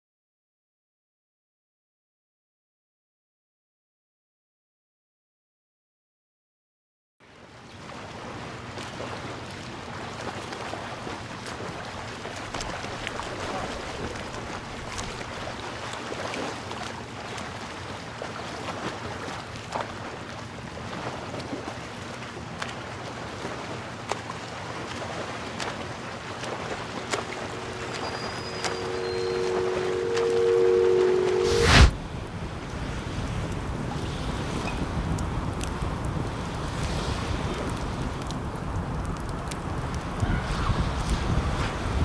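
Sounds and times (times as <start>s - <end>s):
ocean waves: 7.2s - 42.0s
held music notes: 27.1s - 31.9s
wind on microphone: 27.3s - 42.0s.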